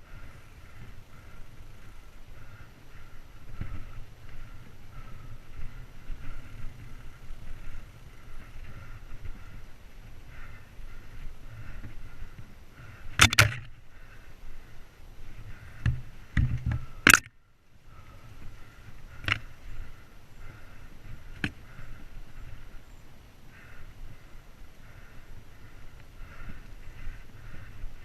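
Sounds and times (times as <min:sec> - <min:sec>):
bike tyre rumble on trail: 0:00.0 - 0:28.0
bike knocking on rocks and roots: 0:13.2 - 0:13.7, 0:15.8 - 0:17.3.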